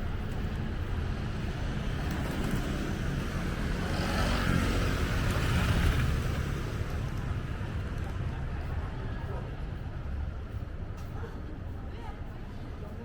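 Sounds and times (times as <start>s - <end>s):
low city rumble: 0.0s - 13.0s
vehicle passing by: 1.8s - 7.0s.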